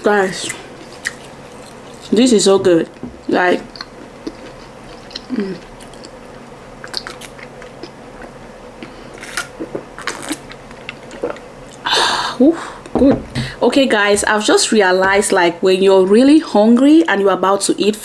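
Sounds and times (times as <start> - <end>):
person chewing: 0.4 - 2.2, 3.5 - 11.8
person humming: 5.2 - 5.7.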